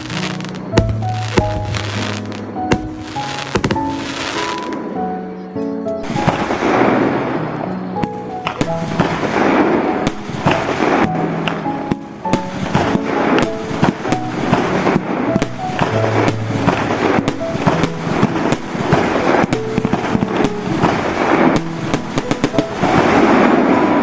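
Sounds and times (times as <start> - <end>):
fireworks bangs and crackling: 0.0 - 4.8
music playing: 0.0 - 6.8.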